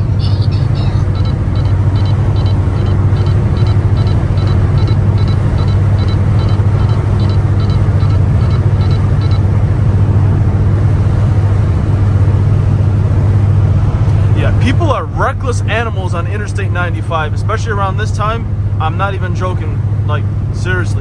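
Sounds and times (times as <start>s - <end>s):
short high electronic beeps: 0.0s - 9.5s
car exhaust droning: 0.0s - 16.4s
road noise: 0.0s - 16.8s.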